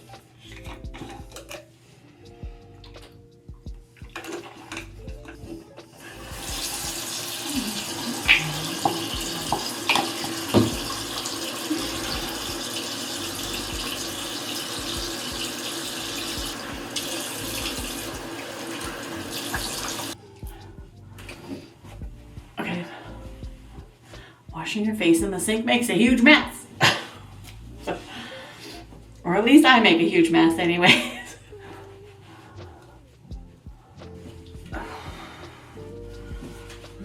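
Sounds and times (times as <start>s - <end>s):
water splashes and knocks: 4.0s - 5.4s, 8.2s - 11.4s, 16.2s - 20.1s
sink tap running: 6.0s - 20.2s.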